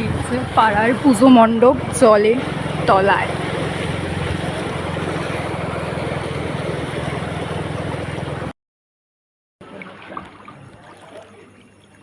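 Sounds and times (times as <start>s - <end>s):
low hum: 0.0s - 8.5s.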